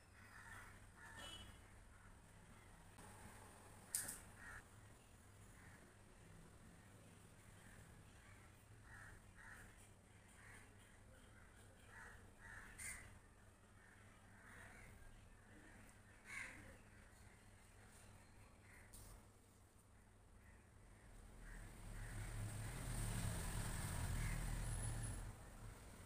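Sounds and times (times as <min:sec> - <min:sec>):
faint bird calls: 0:04.0 - 0:04.7, 0:07.6 - 0:13.2, 0:13.8 - 0:19.3.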